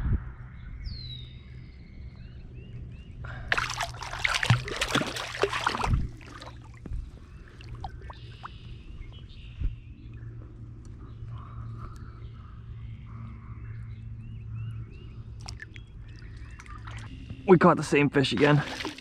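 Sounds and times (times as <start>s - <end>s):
water splashing and sloshing: 3.3s - 8.7s, 15.4s - 17.2s, 18.2s - 19.0s.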